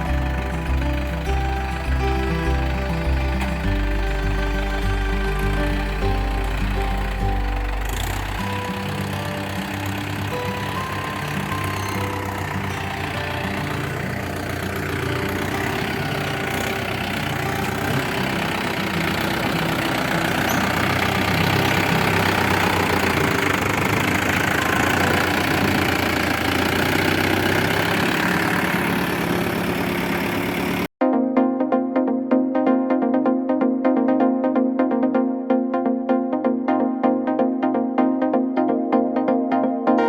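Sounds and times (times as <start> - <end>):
electronic dance music: 0.0 - 26.0, 31.0 - 40.0
diesel tractor engine running: 0.0 - 30.9.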